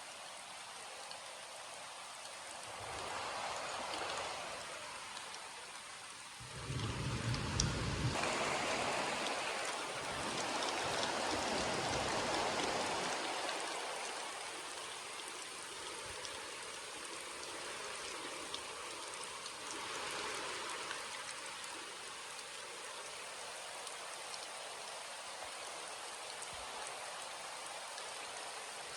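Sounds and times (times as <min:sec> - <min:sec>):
steady rain falling: 0:00.0 - 0:28.9
raindrops ticking: 0:03.8 - 0:08.2.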